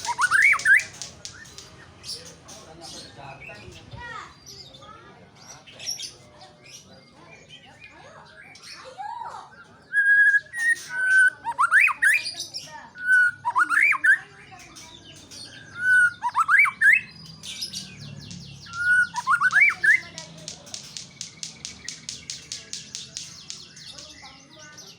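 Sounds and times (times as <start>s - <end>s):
bird singing whistled phrase: 0.0s - 1.6s, 9.8s - 14.3s, 15.6s - 20.2s
high bird chips and chatter: 0.0s - 24.9s.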